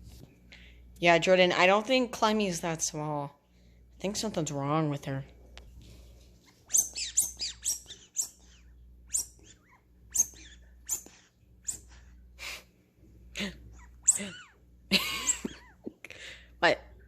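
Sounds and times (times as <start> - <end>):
puppy yelping: 6.5 - 12.1, 13.7 - 14.6.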